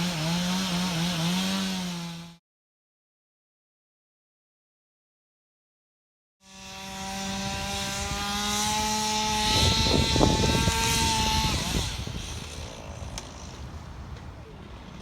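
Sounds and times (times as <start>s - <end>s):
chainsaw running at high revs: 0.0s - 2.4s, 6.4s - 13.8s.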